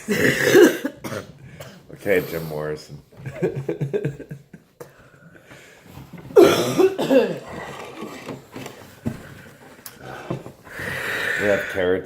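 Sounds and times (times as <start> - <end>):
person clearing throat: 0.0 - 1.8, 6.4 - 7.9
person coughing: 0.1 - 1.8, 6.4 - 7.6.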